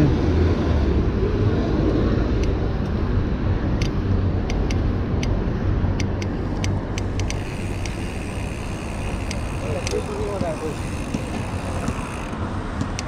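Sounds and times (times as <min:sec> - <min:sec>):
wind rumbling over microphone: 0:00.0 - 0:13.0
sharp clicks: 0:06.0 - 0:08.0.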